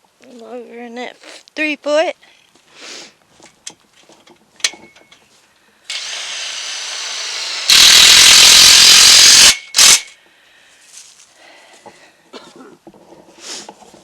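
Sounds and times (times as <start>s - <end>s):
power drill driving into wood: 5.9s - 10.1s.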